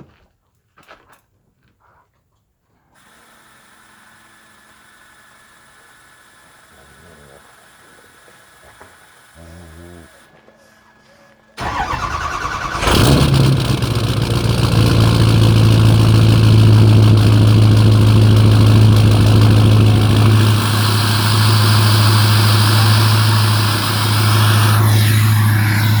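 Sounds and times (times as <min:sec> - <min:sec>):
diesel engine cranking and idling: 0:11.6 - 0:26.0.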